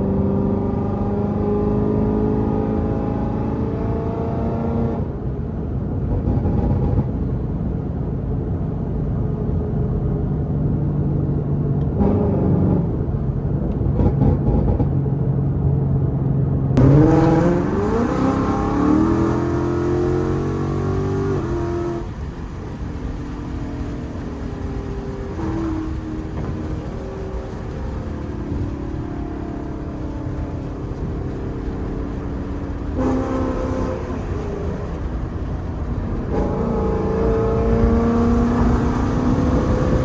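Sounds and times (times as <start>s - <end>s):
car engine while driving: 0.0s - 40.0s.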